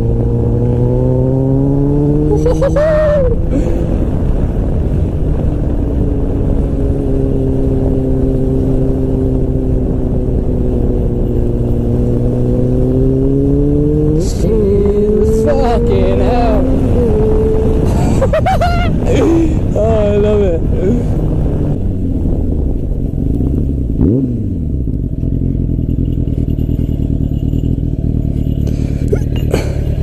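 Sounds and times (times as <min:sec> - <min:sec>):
motorcycle engine running: 0:00.0 - 0:18.4, 0:19.0 - 0:30.0
wind rush: 0:00.0 - 0:24.9.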